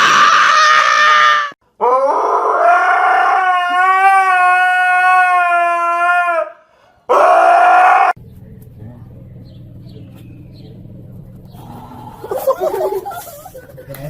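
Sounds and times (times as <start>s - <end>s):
dog howling: 0.0s - 8.2s.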